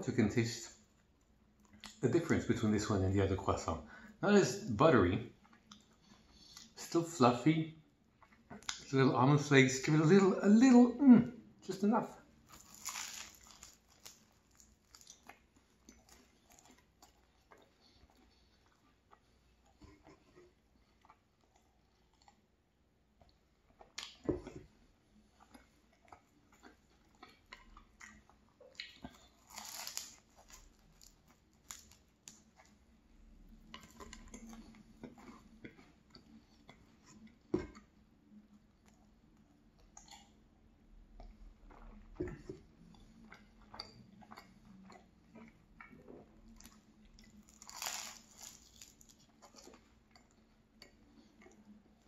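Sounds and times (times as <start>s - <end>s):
chewing and crunching pastry: 0.5s - 10.8s, 11.6s - 52.0s
pastry tearing crackles: 12.4s - 17.5s, 28.8s - 32.8s, 46.6s - 49.9s.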